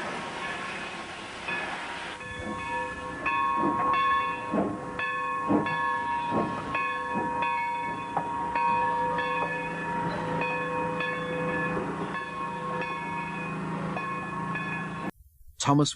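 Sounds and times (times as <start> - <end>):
steam hiss: 0.0 - 2.2
steam locomotive high tones: 0.0 - 15.1
dull knocks: 3.6 - 8.4.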